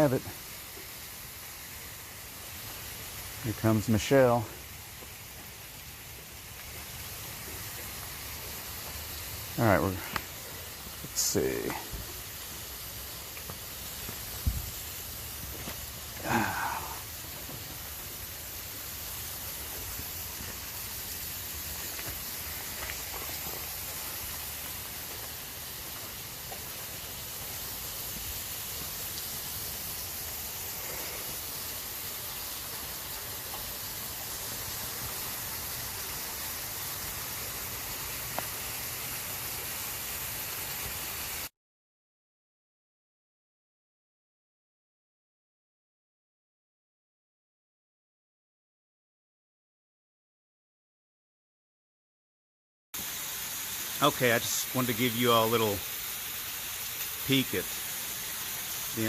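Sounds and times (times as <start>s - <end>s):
waterfall rushing: 1.2s - 41.3s, 53.0s - 59.0s.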